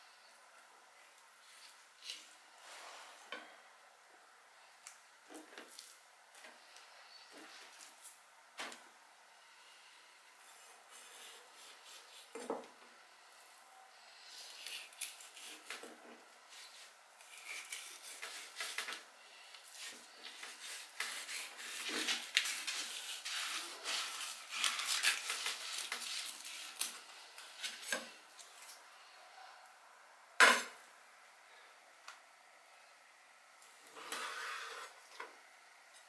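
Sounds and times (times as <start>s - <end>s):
knife scraping cutting board: 19.7s - 26.9s, 33.9s - 35.0s.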